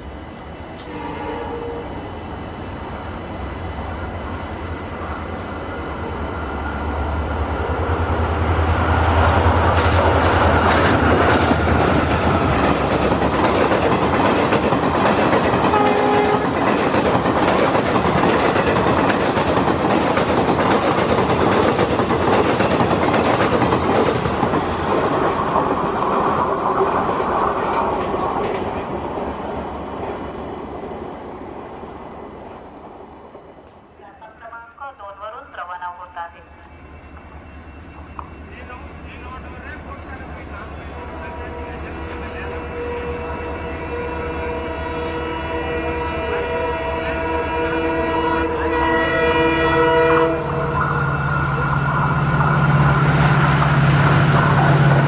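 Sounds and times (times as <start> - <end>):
low train rumble: 0.0 - 55.0
train horn: 0.6 - 2.6, 15.6 - 16.8, 41.1 - 51.7
train wheels clickety-clack: 9.6 - 28.9.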